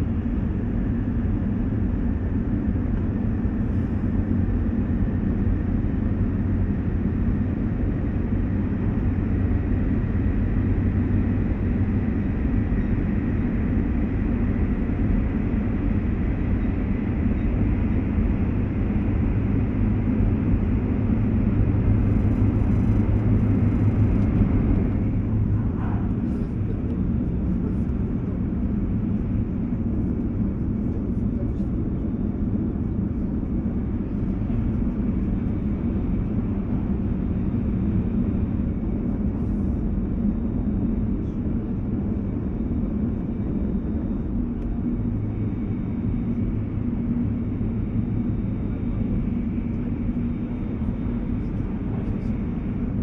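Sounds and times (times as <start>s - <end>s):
train wheels rumbling on track: 21.0s - 32.1s.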